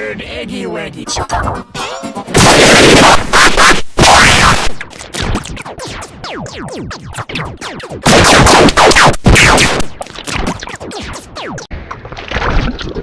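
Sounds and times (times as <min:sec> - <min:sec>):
stuttering falling sweeps: 0:04.9 - 0:11.7.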